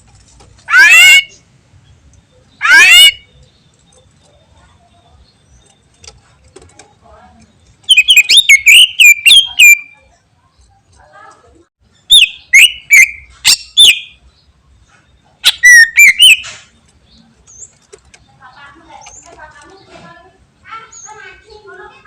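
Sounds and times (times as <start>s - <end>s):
bird singing whistled notes: 7.8s - 10.2s, 12.0s - 14.4s, 15.2s - 16.8s.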